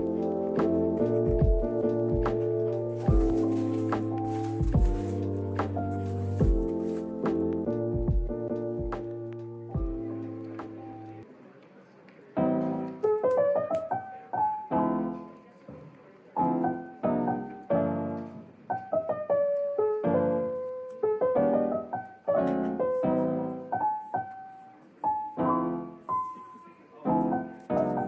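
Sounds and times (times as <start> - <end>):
soft piano tune: 0.0 - 11.6, 12.2 - 28.0.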